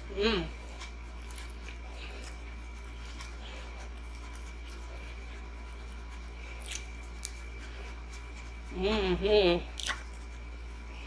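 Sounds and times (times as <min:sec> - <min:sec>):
low electrical hum: 0:00.0 - 0:11.0
quiet chewing: 0:00.0 - 0:11.0.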